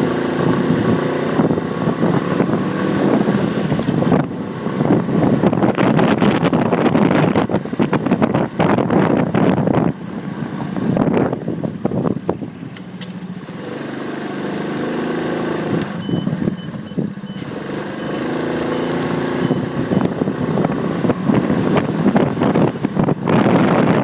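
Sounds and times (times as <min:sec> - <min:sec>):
motorcycle engine humming: 0:00.0 - 0:24.0
wind buffeting microphone: 0:00.4 - 0:12.8, 0:18.6 - 0:24.0.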